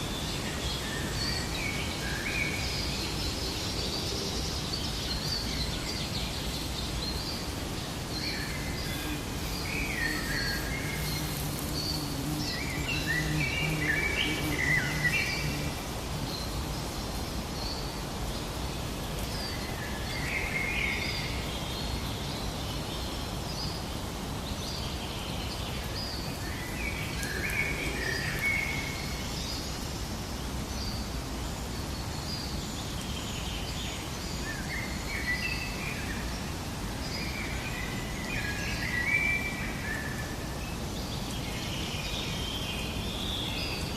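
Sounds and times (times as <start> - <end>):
birds warbling song: 0.0 - 43.9
outdoor background hiss: 0.0 - 43.9
birds chirping: 4.1 - 16.9.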